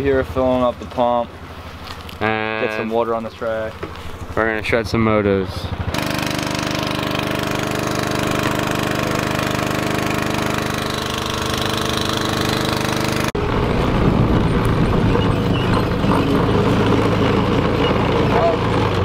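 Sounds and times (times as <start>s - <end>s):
small gasoline engine running: 4.1s - 19.0s.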